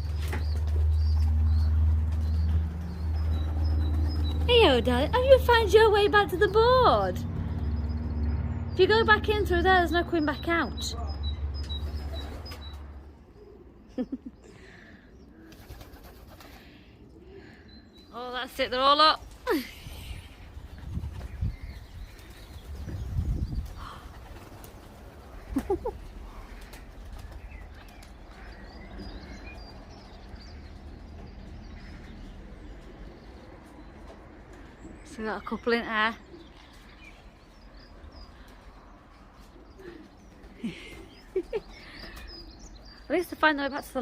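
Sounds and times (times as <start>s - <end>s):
pigeons cooing: 11.6s - 18.0s, 21.6s - 35.0s.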